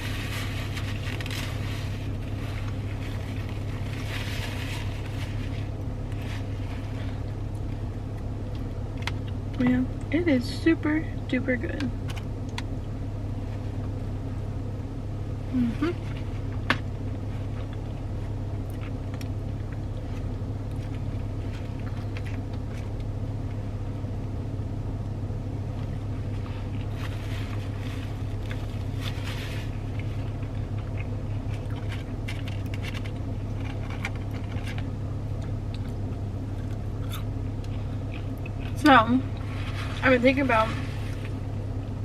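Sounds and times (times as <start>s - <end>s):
clicks and rustles of eating: 0.0s - 9.6s, 15.8s - 23.6s, 25.7s - 40.0s
car engine idling: 0.0s - 42.0s.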